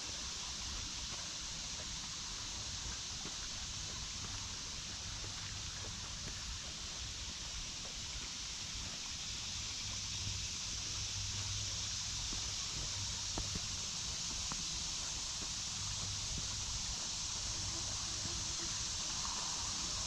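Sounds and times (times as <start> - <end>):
babbling creek water: 0.0 - 20.0
cicadas droning: 0.0 - 20.0
light footsteps on trail: 10.8 - 19.8.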